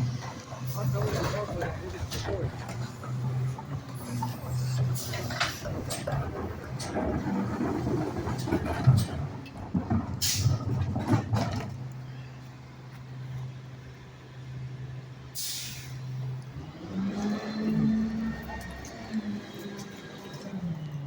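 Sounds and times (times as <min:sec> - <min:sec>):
knocks and rattling: 0:00.0 - 0:12.0
garbage truck engine: 0:00.0 - 0:21.0
air brake hisses: 0:15.4 - 0:16.1.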